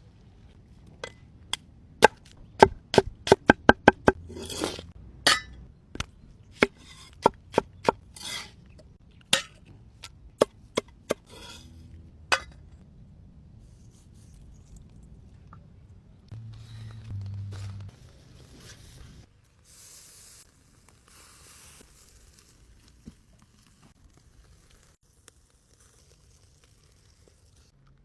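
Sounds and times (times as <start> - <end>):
knife chopping on wooden board: 2.0 - 4.7
knife scraping board: 3.4 - 5.4, 6.6 - 8.6, 11.1 - 11.8.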